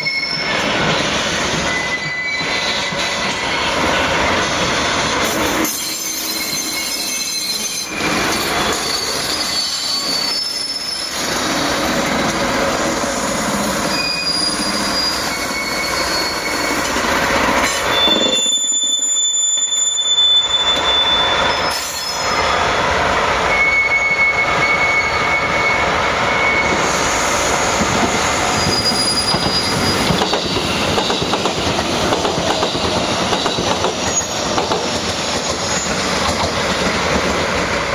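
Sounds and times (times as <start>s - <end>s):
train wheels squealing: 0.0s - 37.0s
train wagons rolling on rails: 0.0s - 37.9s.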